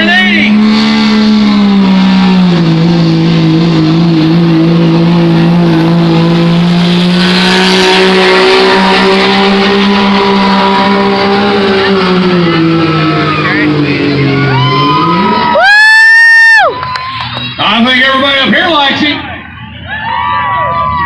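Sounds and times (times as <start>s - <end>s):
tractor engine under heavy load: 0.0s - 15.4s.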